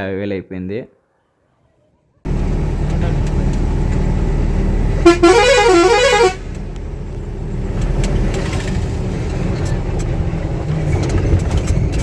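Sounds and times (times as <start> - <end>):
truck engine idling: 2.3 - 11.4
musical truck horn: 5.0 - 6.6.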